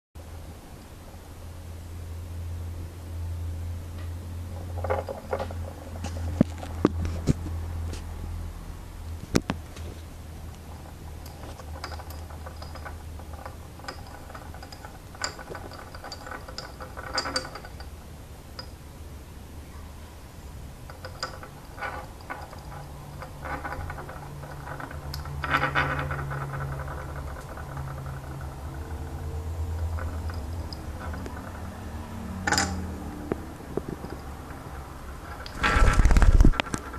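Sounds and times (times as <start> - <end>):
seashells clicking and rattling: 20.9 - 31.6, 33.8 - 36.9.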